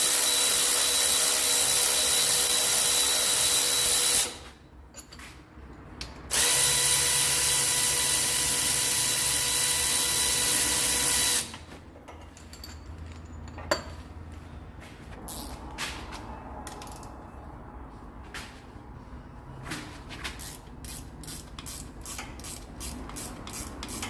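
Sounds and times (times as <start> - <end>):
power tool running: 6.3 - 11.5.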